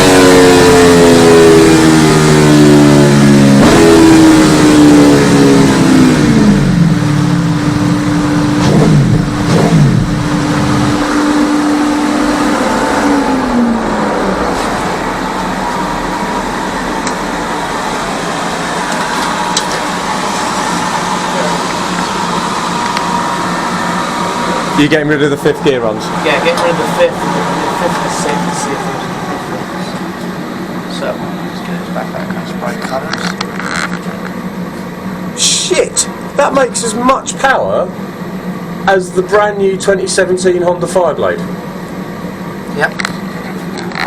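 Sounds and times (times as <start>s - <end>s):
motorcycle engine revs falling: 0.0s - 30.8s
even mechanical hum: 0.0s - 44.0s
steady whine: 0.0s - 44.0s.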